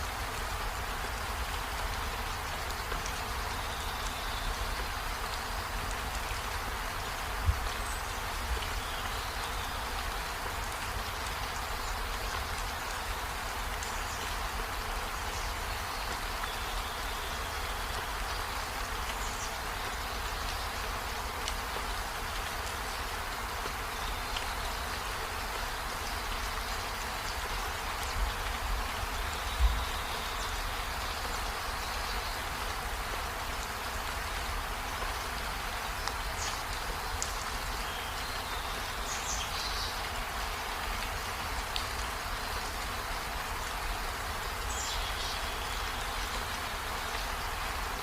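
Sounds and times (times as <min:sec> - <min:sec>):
steady rainfall: 0:00.0 - 0:48.0.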